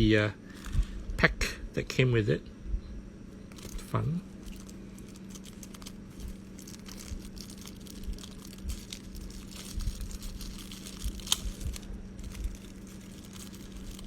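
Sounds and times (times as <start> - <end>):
plastic packaging crinkling: 3.4 - 14.0.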